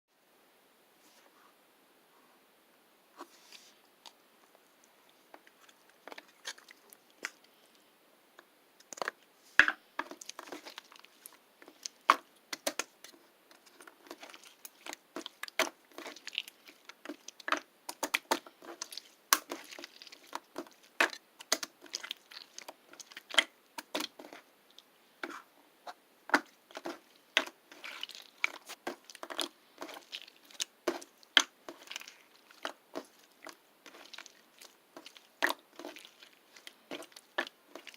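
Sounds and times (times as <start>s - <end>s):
close-up crunching and crackling: 5.1s - 7.8s, 10.0s - 25.5s, 26.3s - 37.9s.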